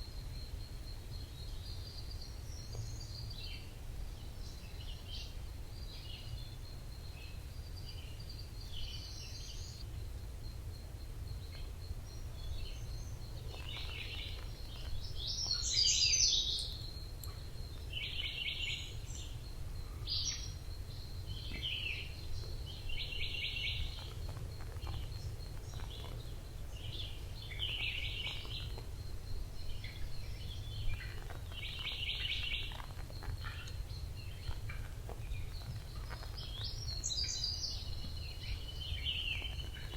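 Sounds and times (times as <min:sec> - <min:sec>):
forest birds singing: 0:00.0 - 0:39.9.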